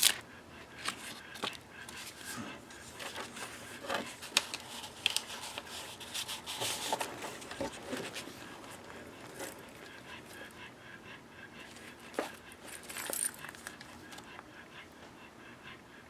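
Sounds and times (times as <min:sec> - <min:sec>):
paper rustling: 0:00.8 - 0:09.6.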